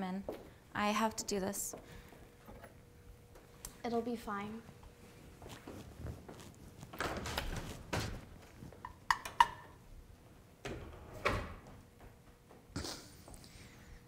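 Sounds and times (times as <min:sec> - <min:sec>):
rustling movement: 0:04.8 - 0:08.8.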